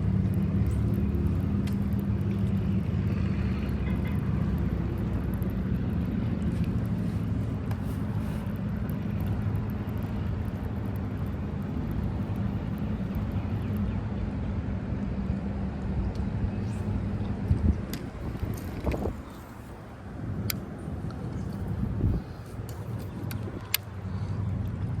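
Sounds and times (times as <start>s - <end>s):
boat engine running: 0.0s - 13.9s.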